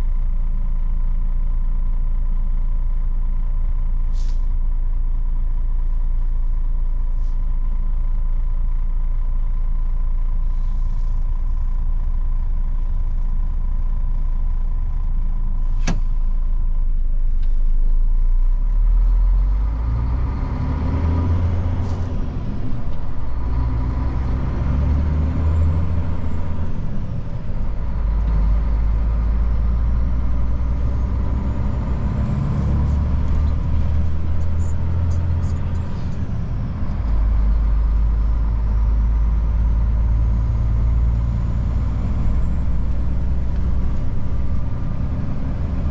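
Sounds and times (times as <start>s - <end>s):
truck engine running: 0.0s - 45.9s
engine whine: 15.6s - 45.9s.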